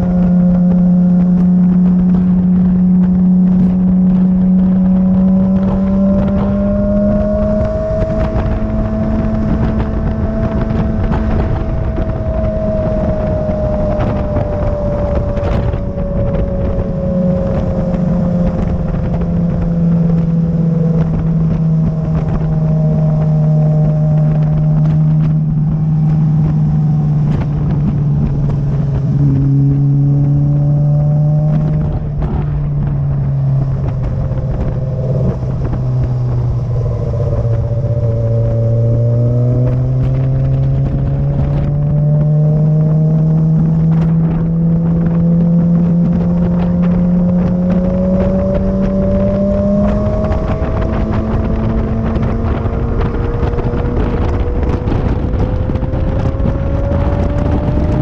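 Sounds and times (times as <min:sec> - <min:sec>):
motorcycle engine under load: 0:00.0 - 0:58.0
wind and road noise: 0:00.0 - 0:58.0.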